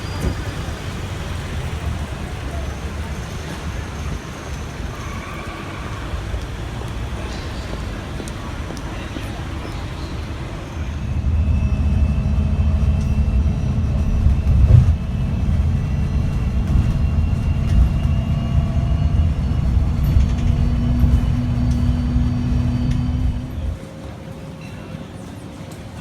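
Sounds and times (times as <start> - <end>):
vehicle low rumble: 6.0 - 24.0.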